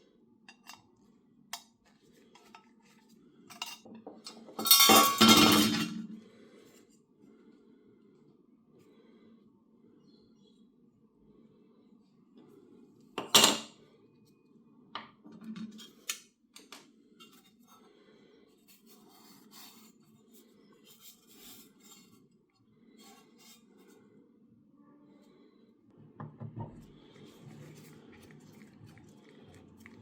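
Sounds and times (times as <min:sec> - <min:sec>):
faint scraping and rubbing: 0:17.0 - 0:24.3, 0:26.6 - 0:30.0.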